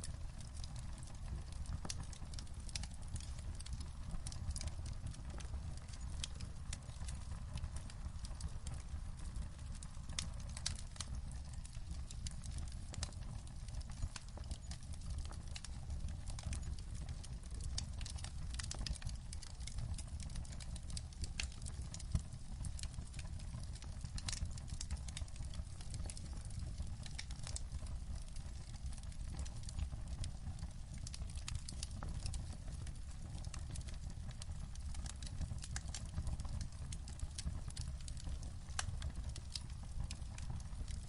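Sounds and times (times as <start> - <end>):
wood fire crackling: 0.0 - 41.0.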